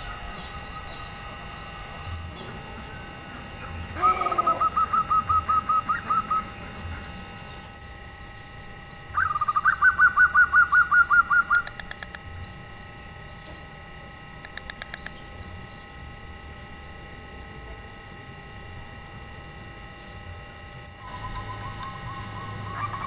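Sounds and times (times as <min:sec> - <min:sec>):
dove cooing trills: 0:00.0 - 0:08.0, 0:09.0 - 0:12.5, 0:20.9 - 0:23.0.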